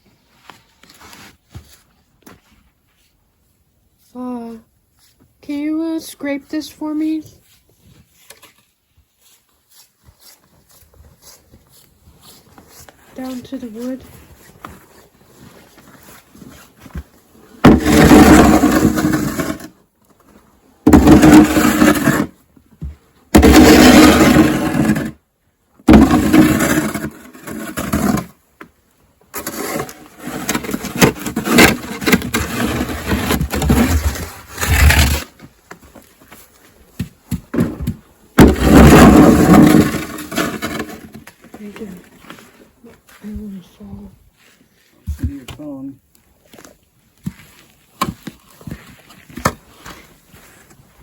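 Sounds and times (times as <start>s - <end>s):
shovel scraping snow off boards: 17.6s - 19.8s, 20.9s - 22.4s, 23.4s - 25.1s, 25.9s - 28.4s, 29.3s - 35.4s, 38.4s - 42.6s.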